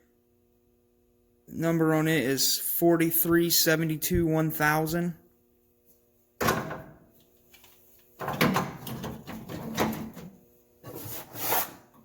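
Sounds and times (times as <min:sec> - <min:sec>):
boxes scraping: 0:10.8 - 0:11.9.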